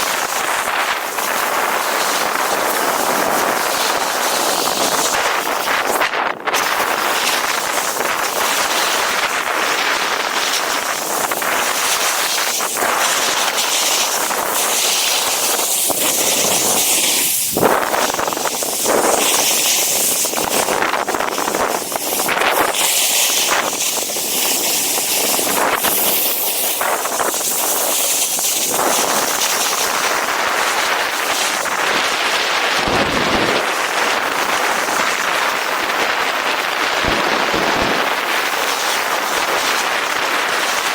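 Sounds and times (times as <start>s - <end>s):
snowboard scraping over snow: 0.0s - 40.9s
wind hitting microphone: 28.6s - 40.6s.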